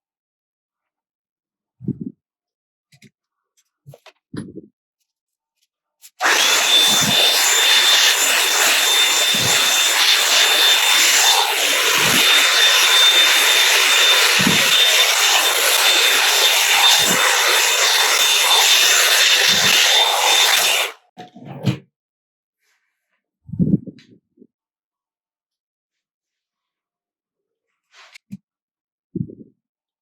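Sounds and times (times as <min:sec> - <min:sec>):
hair dryer blowing air: 0:06.2 - 0:21.0
motor high whine: 0:06.2 - 0:21.0.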